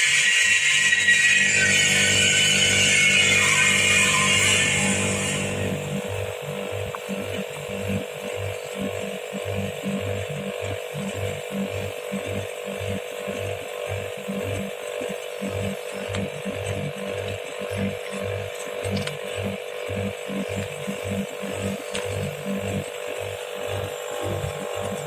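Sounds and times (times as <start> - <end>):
air conditioner unit humming: 3.8 - 10.4, 15.5 - 25.0.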